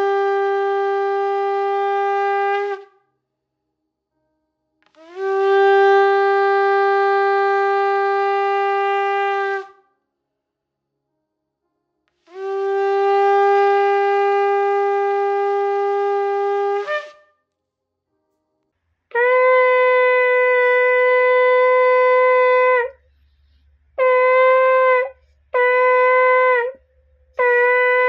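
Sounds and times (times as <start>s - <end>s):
shofar blasts: 0.0s - 3.0s, 4.9s - 9.8s, 12.2s - 17.4s, 19.1s - 23.0s, 24.0s - 28.0s.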